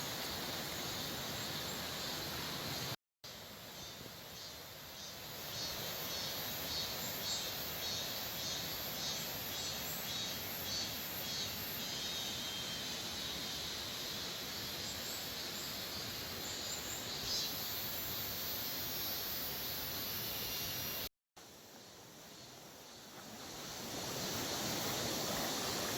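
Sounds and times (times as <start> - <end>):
mountain stream flowing: 21.4 - 25.9.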